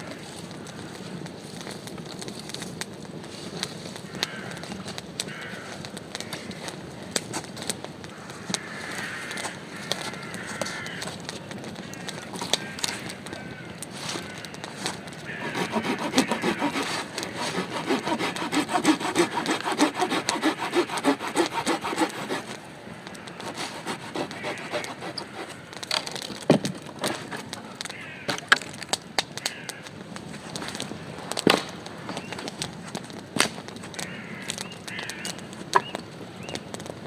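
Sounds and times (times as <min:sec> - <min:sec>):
hand saw cutting wood: 0:15.3 - 0:22.7, 0:23.3 - 0:25.6.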